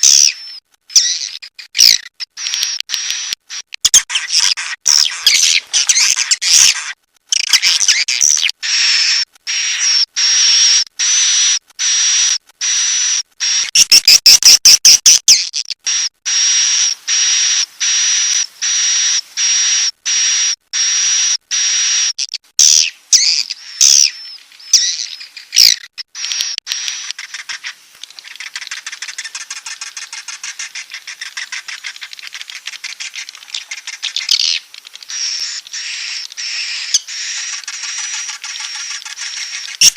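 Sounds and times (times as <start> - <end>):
fast twittering chatter: 0.0 - 39.9
harsh buzzy bird chirps: 0.0 - 39.9
loud fast clicks: 26.1 - 39.9.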